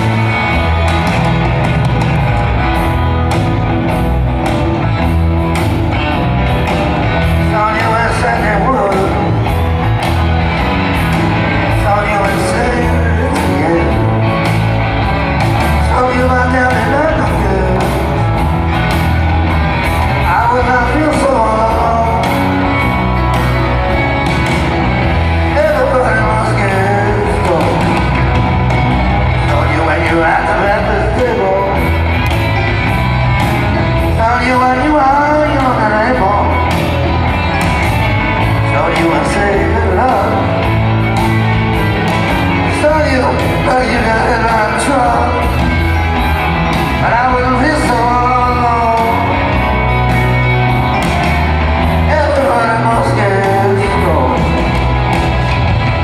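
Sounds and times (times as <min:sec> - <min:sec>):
live rock band playing: 0:00.0 - 0:56.0
person singing: 0:07.2 - 0:10.9, 0:11.5 - 0:18.5, 0:20.1 - 0:24.0, 0:25.3 - 0:32.4, 0:34.0 - 0:37.3, 0:38.4 - 0:41.7, 0:42.6 - 0:55.0.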